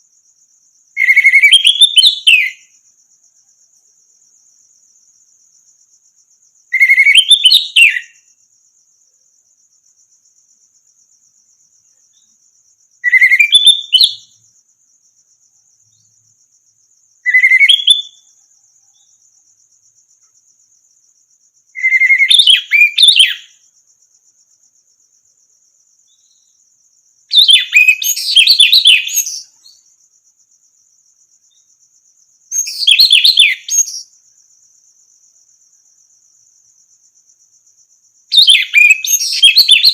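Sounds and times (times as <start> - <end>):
thrush singing whistled phrases: 1.0 - 2.7, 6.8 - 8.2, 13.0 - 14.3, 17.2 - 18.2, 21.8 - 23.6, 27.4 - 29.6, 32.6 - 34.0, 38.4 - 39.9.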